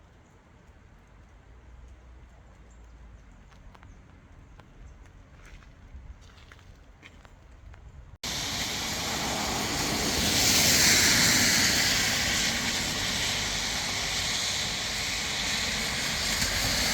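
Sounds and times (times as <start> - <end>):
loud steady rushing noise: 8.2 - 16.9.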